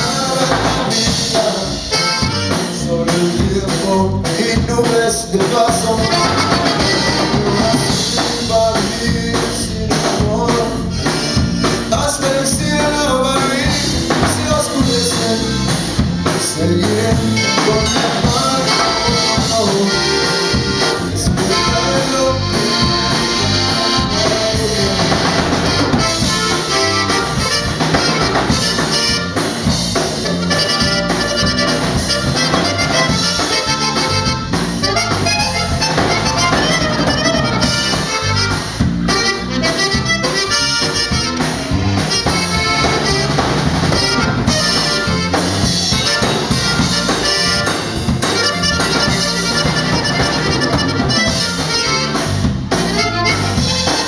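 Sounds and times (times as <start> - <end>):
accordion melody: 0.0 - 54.0
drum kit: 0.0 - 54.0.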